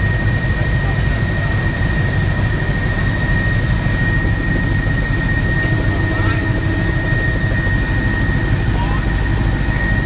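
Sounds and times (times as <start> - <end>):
helicopter rotor and engine rumble: 0.0 - 10.0.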